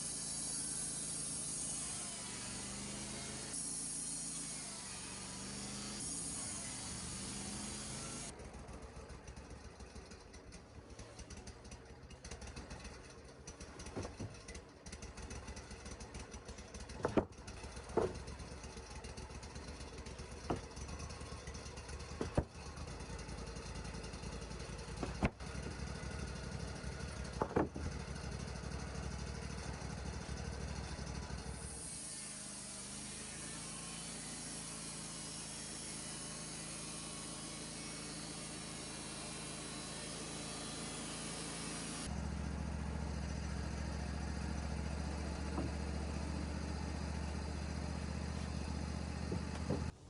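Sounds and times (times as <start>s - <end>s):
sawmill engine running: 0.0s - 50.0s
sharp knocks: 17.0s - 18.3s, 25.0s - 25.4s, 27.4s - 27.9s.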